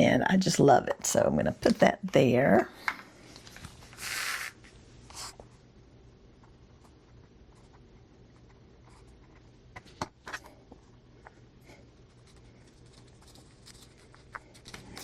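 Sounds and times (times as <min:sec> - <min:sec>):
paper rustling: 0:12.0 - 0:15.0.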